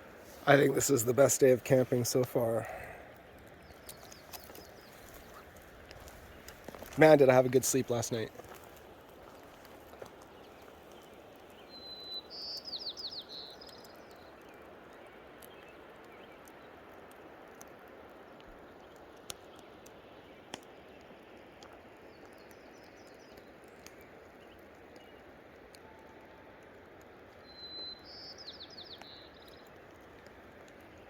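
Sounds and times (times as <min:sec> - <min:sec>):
faint clicks: 0:01.8 - 0:07.0, 0:13.3 - 0:27.9, 0:28.9 - 0:31.0
bird chirping: 0:03.6 - 0:08.3, 0:10.3 - 0:14.5, 0:27.4 - 0:29.6.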